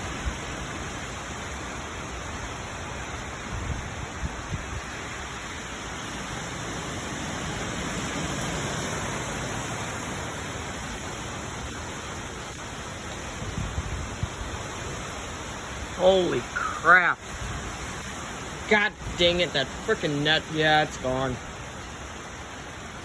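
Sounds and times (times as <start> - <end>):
strong wind gusting: 0.0 - 23.0
wind buffeting microphone: 3.2 - 19.8.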